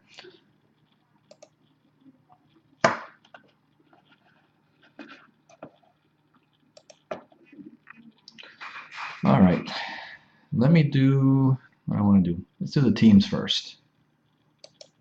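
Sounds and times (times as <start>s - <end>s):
computer mouse and keyboard clicks: 1.3s - 1.6s, 6.7s - 9.1s, 14.6s - 15.0s.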